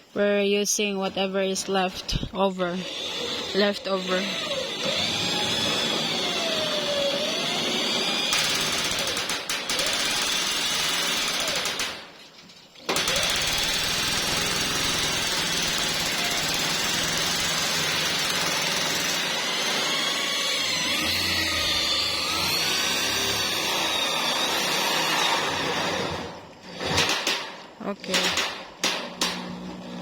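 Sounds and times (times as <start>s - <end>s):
power tool running: 2.8s - 12.0s, 12.9s - 27.2s.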